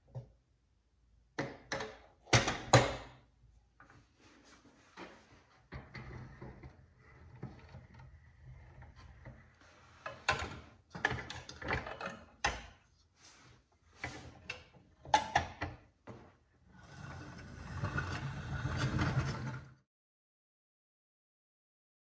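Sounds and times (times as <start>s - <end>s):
toy trucks clunking and rattling: 5.8s - 12.7s.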